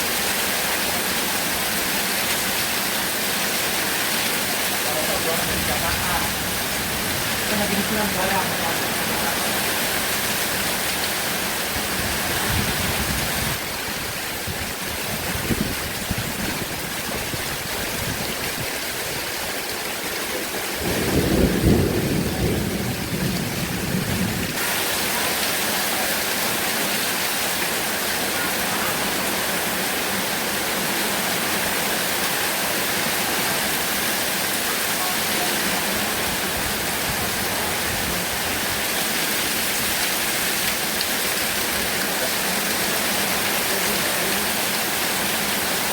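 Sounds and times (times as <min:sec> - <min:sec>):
heavy rain falling: 0:00.0 - 0:45.9
thunder rumble: 0:20.7 - 0:24.6.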